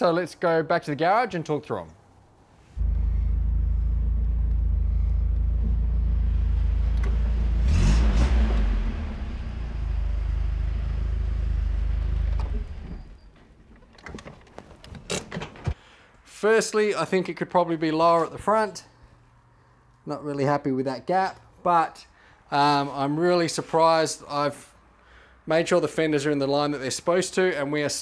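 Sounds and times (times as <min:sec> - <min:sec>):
car engine running and revving: 0:02.8 - 0:12.9.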